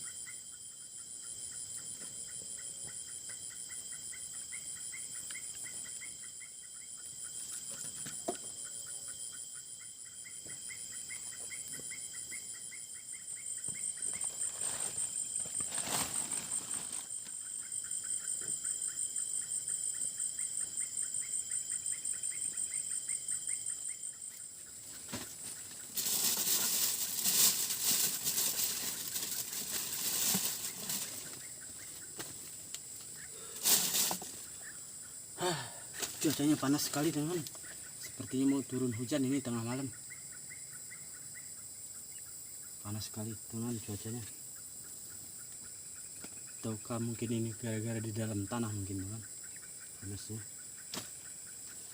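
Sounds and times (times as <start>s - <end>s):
fast pulsing insect call: 0.0s - 51.9s
night insects trilling: 0.0s - 51.9s
close rustling and handling noises: 25.0s - 31.4s, 33.6s - 34.4s.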